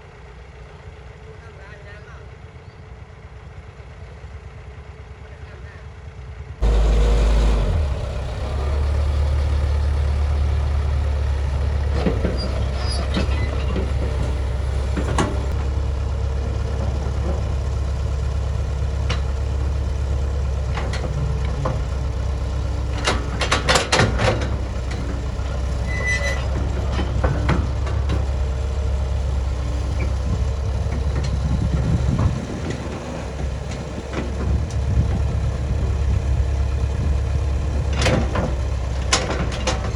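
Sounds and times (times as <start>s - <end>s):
bulldozer diesel engine: 2.6s - 39.9s
metallic clanks and knocks: 11.5s - 15.8s, 20.6s - 22.0s, 22.8s - 28.4s, 37.8s - 39.9s.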